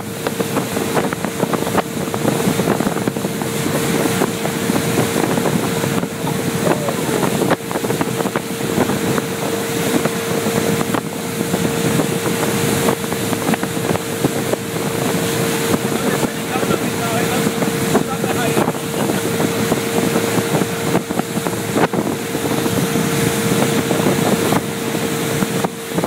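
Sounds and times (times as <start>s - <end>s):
motorboat engine running: 0.0s - 26.0s
wind buffeting microphone: 0.0s - 26.0s.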